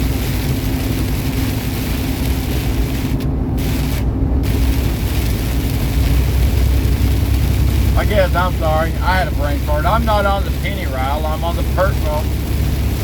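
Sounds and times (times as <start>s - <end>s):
road and wind hiss: 0.0s - 13.0s
truck engine drone: 0.0s - 13.0s.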